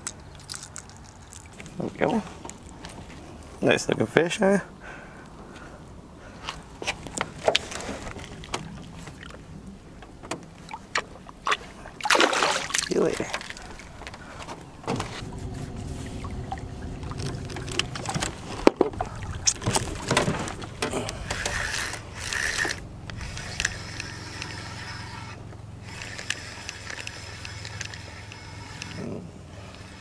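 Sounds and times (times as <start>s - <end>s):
boat motor humming: 5.1s - 30.0s
knocks and clatter in boat: 6.9s - 11.6s, 12.7s - 22.1s.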